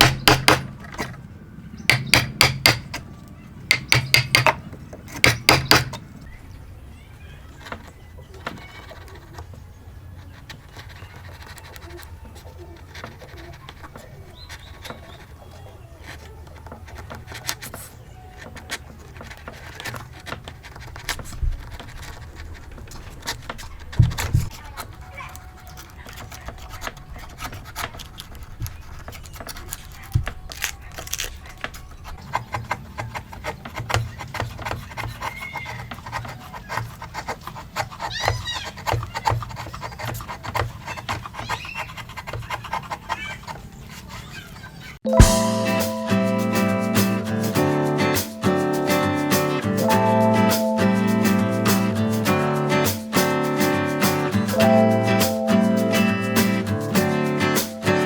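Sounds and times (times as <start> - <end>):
hand tool scraping wood: 10.2 - 30.1, 31.0 - 44.9
hammer blows ringing: 45.1 - 58.0.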